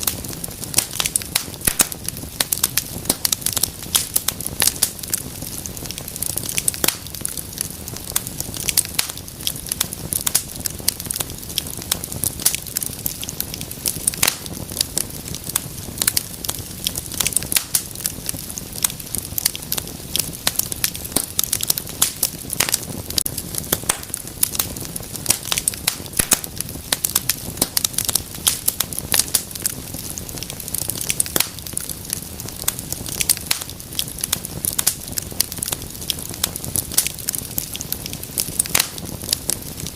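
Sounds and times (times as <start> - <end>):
fire crackling and popping: 0.0 - 39.9
low rumble of flame: 0.0 - 39.9.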